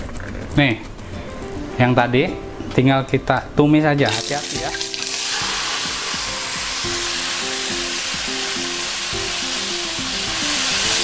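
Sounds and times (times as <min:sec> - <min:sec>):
greens sizzling in a wok: 0:04.1 - 0:11.0.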